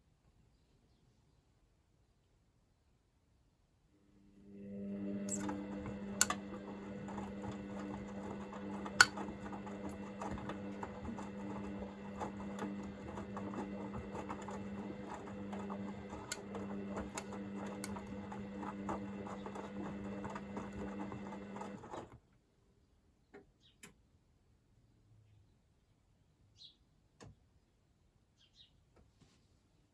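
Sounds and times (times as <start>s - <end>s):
washing machine motor hum: 4.1s - 22.2s.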